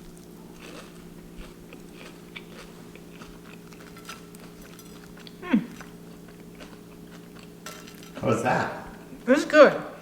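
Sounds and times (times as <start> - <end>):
crunchy bites and chewing: 0.0 - 7.6.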